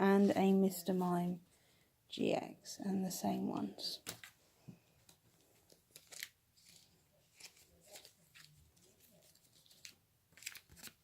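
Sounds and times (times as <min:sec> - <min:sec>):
trading cards and packaging crinkling: 0:05.0 - 0:11.0.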